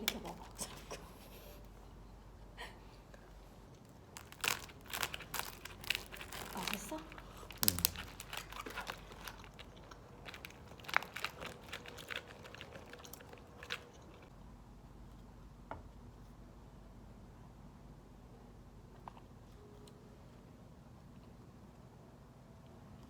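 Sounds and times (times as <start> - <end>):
crunchy food being chewed: 3.8 - 14.4.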